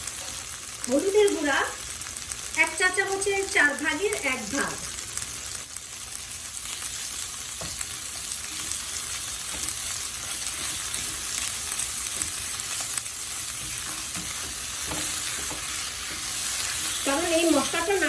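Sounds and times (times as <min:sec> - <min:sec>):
vegetables sizzling in oil: 0:00.0 - 0:18.0
spatula scraping and tapping: 0:07.6 - 0:08.8, 0:09.4 - 0:11.4, 0:13.5 - 0:17.0.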